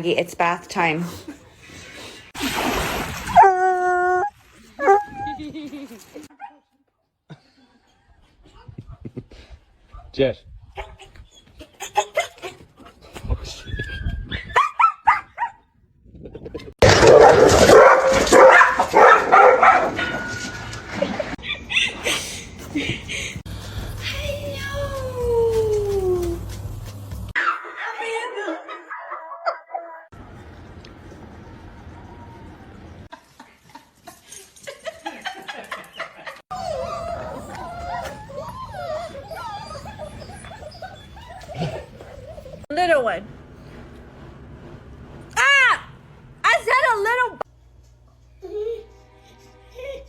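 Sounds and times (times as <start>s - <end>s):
dog whining: 3.3s - 5.4s, 36.5s - 42.7s
loud dog barking: 16.9s - 20.0s.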